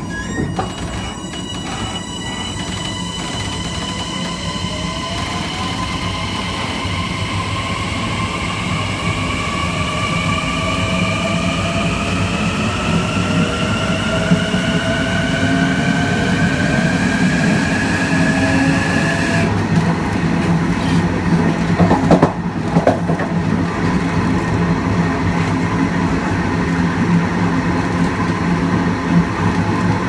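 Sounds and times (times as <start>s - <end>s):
electric train motors whining: 0.0s - 8.1s.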